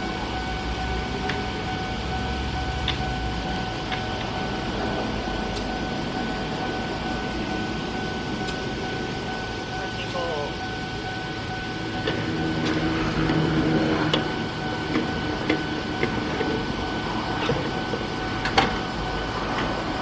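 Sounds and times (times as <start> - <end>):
railcar equipment humming: 0.0 - 20.0
steady whine: 0.0 - 20.0
low rumble: 10.6 - 19.6.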